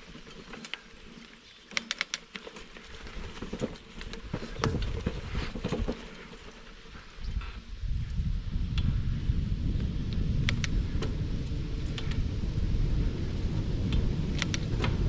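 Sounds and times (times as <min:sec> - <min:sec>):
bicycle clicks and rattles: 0:00.0 - 0:09.0, 0:09.8 - 0:15.0
tyre rumble: 0:02.7 - 0:07.6
wind buffeting microphone: 0:03.2 - 0:06.0, 0:06.9 - 0:15.0.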